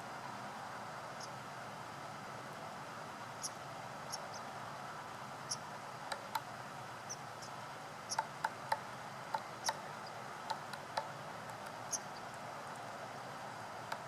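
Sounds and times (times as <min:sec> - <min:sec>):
woodpecker pecking at wood: 0:08.1 - 0:12.1.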